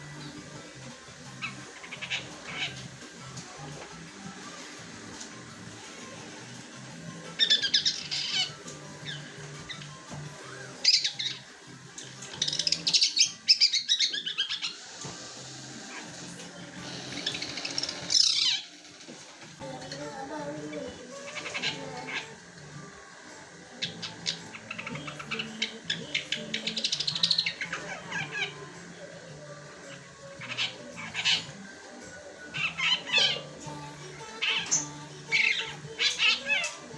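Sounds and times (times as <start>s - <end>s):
shrike chattering song: 7.3s - 10.0s, 23.6s - 36.9s.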